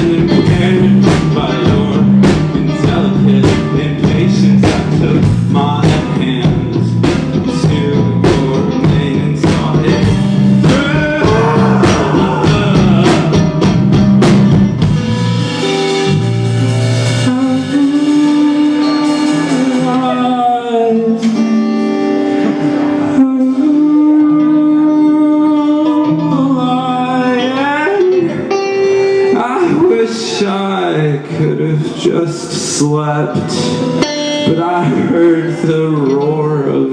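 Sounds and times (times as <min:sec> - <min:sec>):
drum kit: 0:00.0 - 0:23.6
bass guitar: 0:00.0 - 0:36.9
electric guitar: 0:00.0 - 0:36.9.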